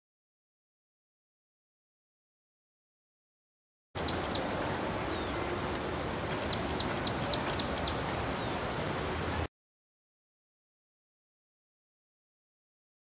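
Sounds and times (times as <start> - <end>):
small bird calling: 4.0 - 9.5.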